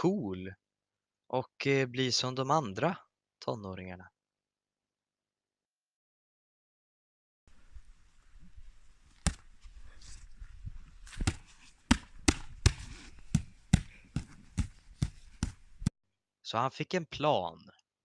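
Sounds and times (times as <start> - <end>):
faint background noise: 7.5 - 15.9
sharp thumps: 11.0 - 15.9.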